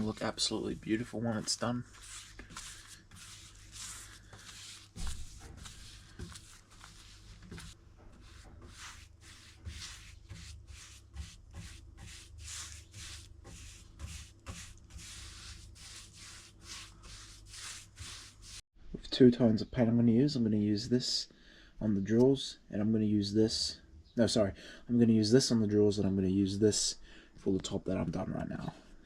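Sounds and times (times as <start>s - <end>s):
hand rubbing on a surface: 0.0s - 18.6s.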